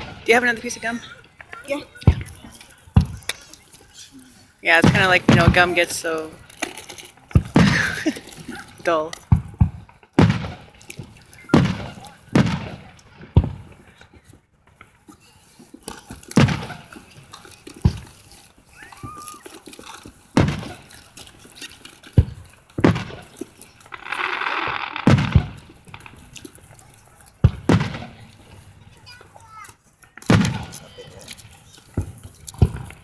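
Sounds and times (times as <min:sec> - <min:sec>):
fireworks booming: 0:00.0 - 0:03.4, 0:04.6 - 0:13.9, 0:16.3 - 0:18.4, 0:20.3 - 0:21.1, 0:22.2 - 0:29.3, 0:30.2 - 0:33.0
fireworks hissing crackle: 0:00.0 - 0:33.0.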